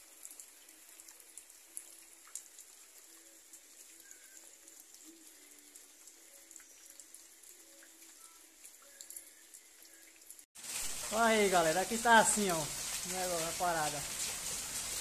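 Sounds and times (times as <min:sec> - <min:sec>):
light rain: 0:00.0 - 0:15.0.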